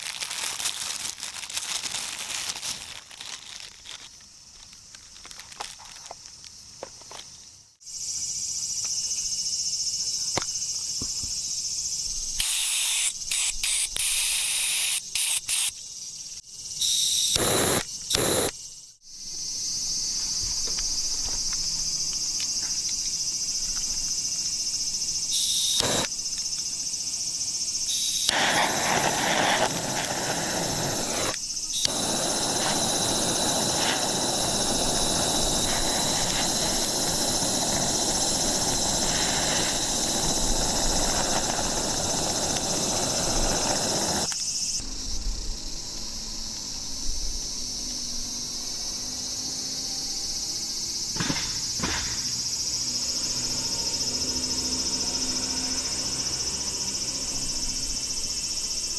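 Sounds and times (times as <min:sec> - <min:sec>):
insects droning: 0:00.0 - 0:58.9
loud steady hissing rush: 0:16.9 - 0:18.5, 0:24.4 - 0:26.2, 0:27.3 - 0:48.8.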